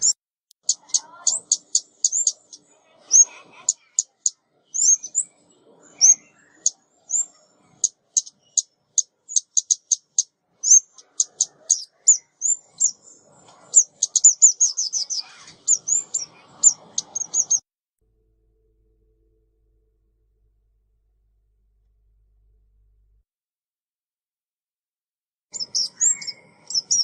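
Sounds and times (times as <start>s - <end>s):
songbird chips and calls: 0.0s - 5.3s, 6.0s - 17.6s, 25.6s - 27.0s.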